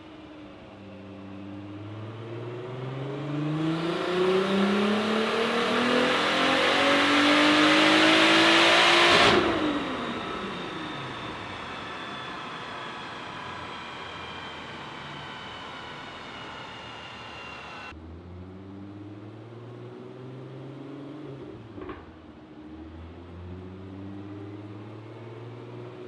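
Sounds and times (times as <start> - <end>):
car engine revving at full throttle: 1.5 - 22.0.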